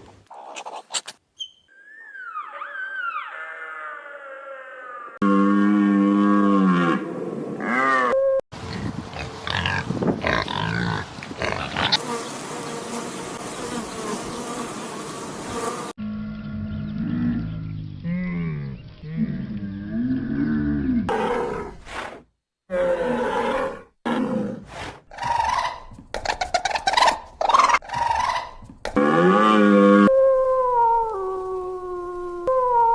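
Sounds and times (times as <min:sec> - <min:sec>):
wavering animal calls: 0:01.4 - 0:05.2
rough roar-like animal vocalizations: 0:16.0 - 0:22.1, 0:29.0 - 0:30.1.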